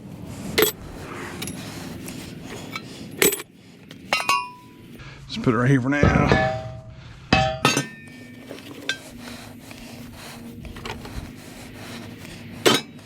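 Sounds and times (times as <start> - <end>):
scrap metal clicking and scraping: 0.5 - 0.8, 1.4 - 4.7, 7.6 - 13.0
metallic clanks: 3.2 - 4.7, 6.0 - 9.0.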